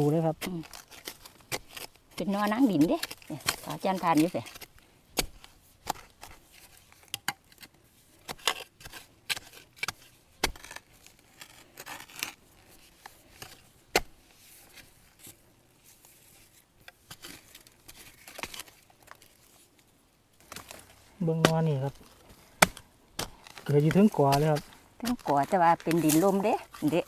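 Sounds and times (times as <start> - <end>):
brush rustling: 7.9 - 27.0.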